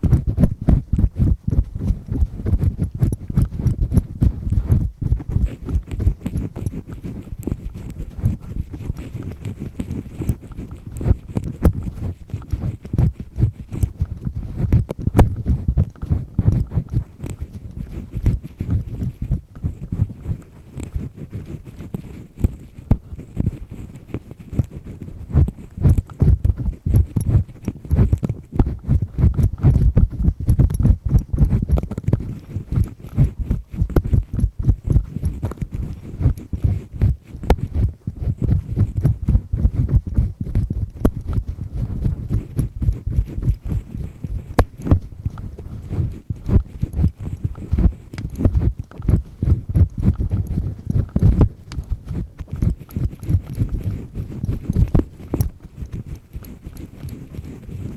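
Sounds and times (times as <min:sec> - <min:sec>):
earpick scraping inside ear: 0:00.0 - 0:57.9.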